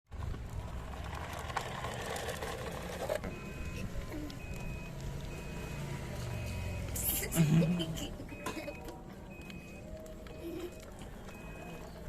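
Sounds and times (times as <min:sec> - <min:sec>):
toy motors and gears whirring: 0:00.2 - 0:07.1.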